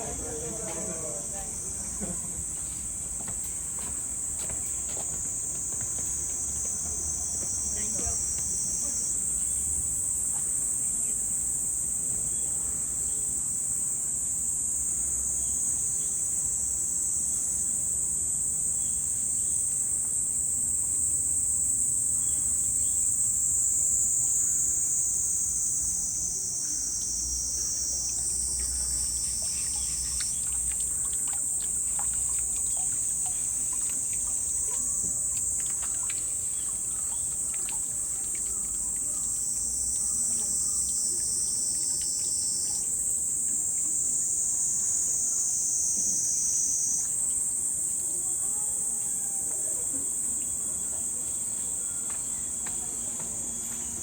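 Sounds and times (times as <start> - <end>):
insects shrilling: 22.2 - 47.4.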